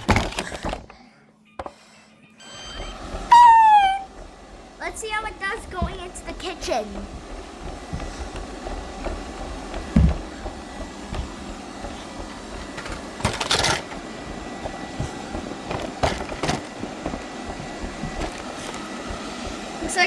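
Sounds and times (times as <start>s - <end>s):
faint high tone: 2.4s - 4.1s
robot vacuum whirring: 2.4s - 20.0s.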